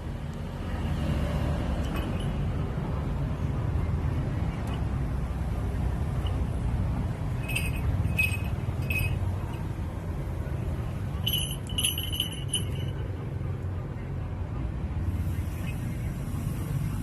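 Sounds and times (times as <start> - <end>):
small metal bell jingling: 1.8 - 2.5, 7.3 - 9.6, 11.2 - 13.0.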